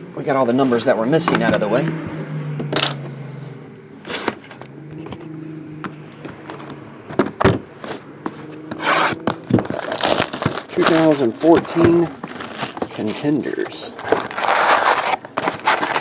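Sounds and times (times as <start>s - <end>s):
knocks and clicks of handling a box: 5.8s - 9.8s, 11.4s - 13.2s
crinkly wrapping rustle: 9.5s - 16.0s.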